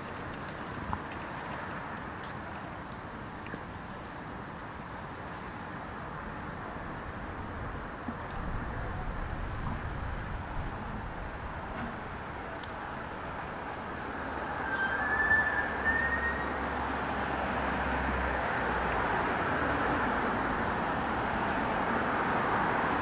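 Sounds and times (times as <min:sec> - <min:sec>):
road traffic hum: 0:00.0 - 0:23.0.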